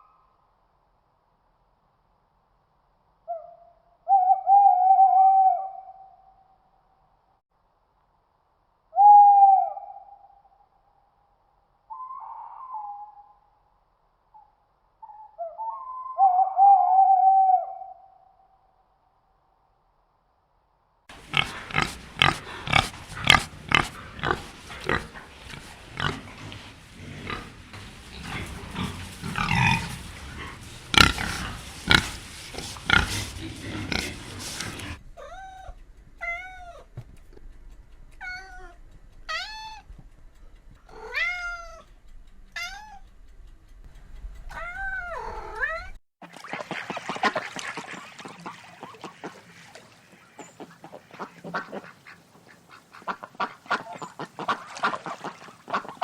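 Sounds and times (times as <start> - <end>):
short pitched animal calls: 21.1 - 36.9
animal grunting with clicks: 21.1 - 39.9, 40.7 - 42.0, 47.5 - 56.0
rustling: 21.1 - 44.6.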